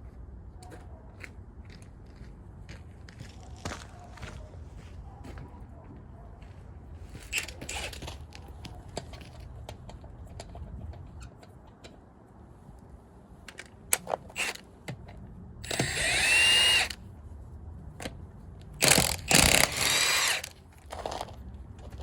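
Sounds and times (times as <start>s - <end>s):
power tool spinning lug nuts: 7.3s - 8.0s, 14.0s - 14.6s, 15.6s - 17.0s, 18.7s - 20.6s.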